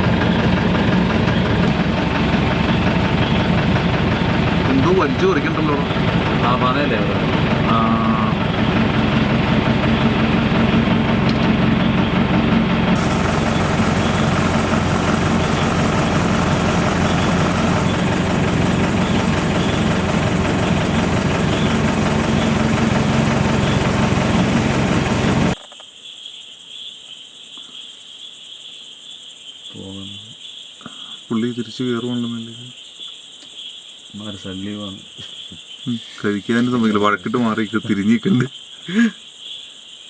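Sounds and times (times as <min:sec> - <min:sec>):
jeep engine idling: 0:00.0 - 0:25.6
crickets chirring: 0:00.0 - 0:40.0.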